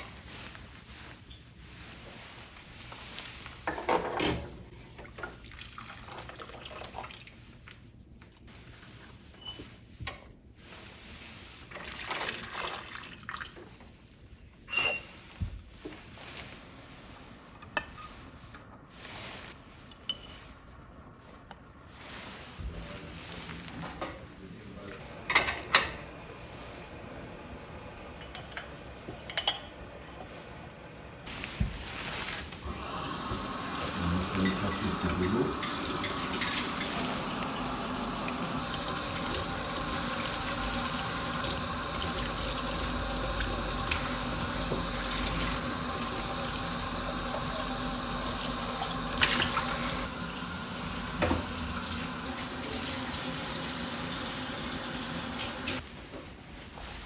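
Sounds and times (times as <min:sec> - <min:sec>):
water splashing in sink: 0:05.3 - 0:07.4, 0:11.7 - 0:13.7, 0:32.6 - 0:55.8.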